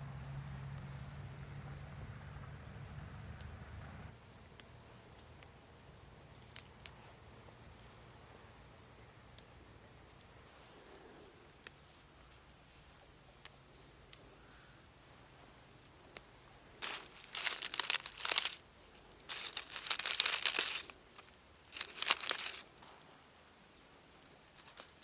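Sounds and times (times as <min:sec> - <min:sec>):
crinkling rustling handling noise: 0:16.8 - 0:23.3, 0:24.3 - 0:25.0.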